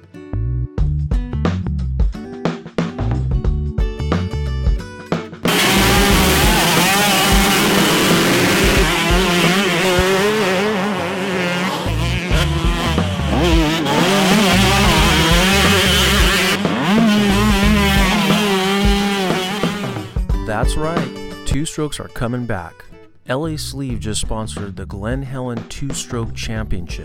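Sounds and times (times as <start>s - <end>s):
motocross bikes racing: 5.5s - 20.2s.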